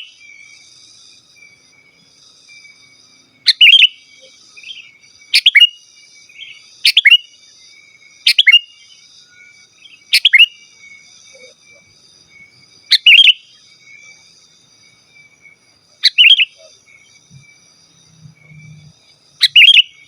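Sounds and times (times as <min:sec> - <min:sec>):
bird whistled calls: 0:03.5 - 0:07.3, 0:08.2 - 0:14.2, 0:16.0 - 0:17.5, 0:18.1 - 0:20.0
faint high buzz: 0:16.8 - 0:19.5.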